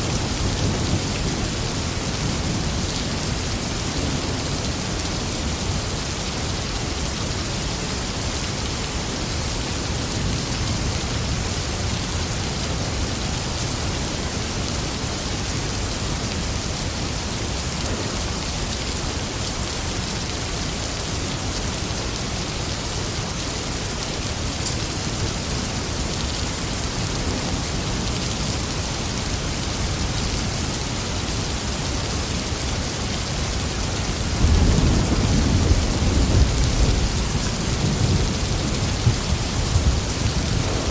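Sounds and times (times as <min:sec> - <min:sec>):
steady rain hiss: 0:00.0 - 0:40.9
low rumble of thunder: 0:34.2 - 0:40.9.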